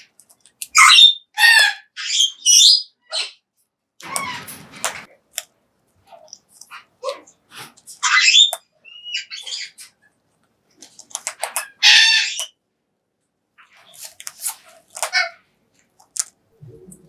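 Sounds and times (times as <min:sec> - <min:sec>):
clicks and crunches: 0:10.8 - 0:11.8, 0:13.8 - 0:15.2, 0:15.8 - 0:16.4
cockatoo harsh screech: 0:11.8 - 0:12.5.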